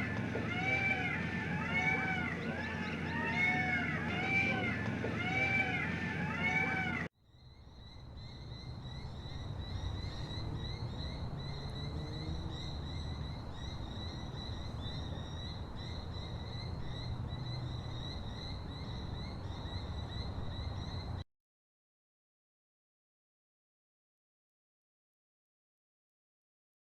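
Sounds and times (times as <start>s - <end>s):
loud arching animal calls: 0.0s - 7.1s.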